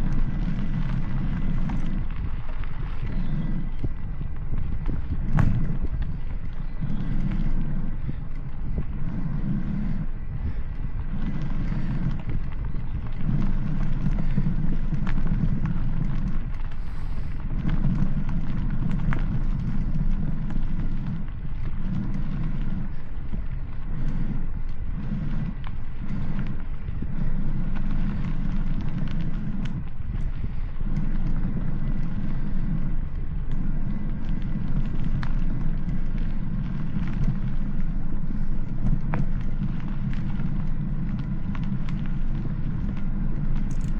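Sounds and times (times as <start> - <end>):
vehicle rumble: 0.0 - 43.9
clicks and rattles: 43.6 - 43.9.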